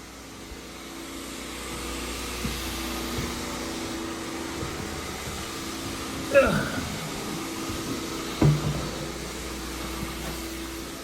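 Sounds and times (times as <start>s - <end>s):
carpet cleaning machine suction: 0.0s - 11.0s.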